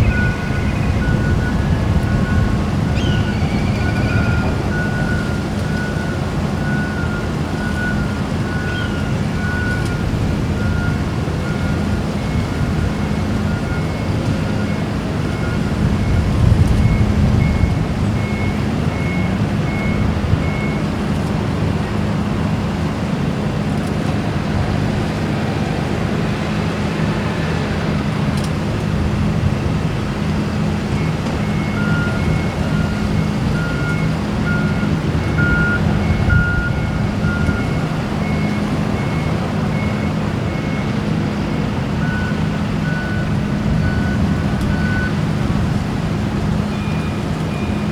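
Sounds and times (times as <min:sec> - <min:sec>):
reversing alarm beeping: 0:00.0 - 0:21.0, 0:30.6 - 0:45.7, 0:46.4 - 0:47.9
low engine drone: 0:00.0 - 0:47.9.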